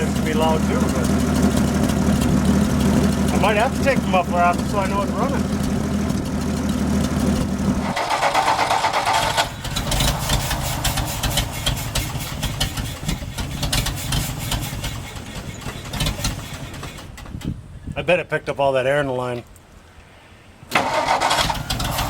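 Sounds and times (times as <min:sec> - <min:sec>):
engine idling unevenly: 0:00.0 - 0:17.2
engine knocks: 0:00.0 - 0:17.6.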